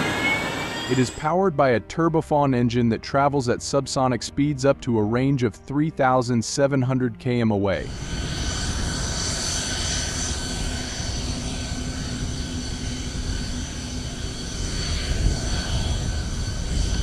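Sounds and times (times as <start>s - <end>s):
faint high whine: 0.0s - 1.4s, 7.8s - 17.0s
aircraft engine running: 0.0s - 17.0s
low hum: 7.6s - 17.0s.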